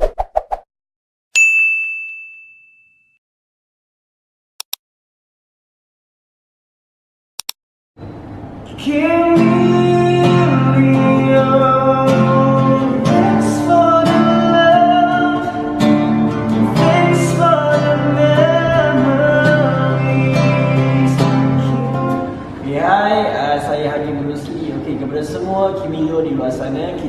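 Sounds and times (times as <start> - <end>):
guitar: 8.3 - 22.9
person singing: 8.7 - 15.9, 16.5 - 22.3.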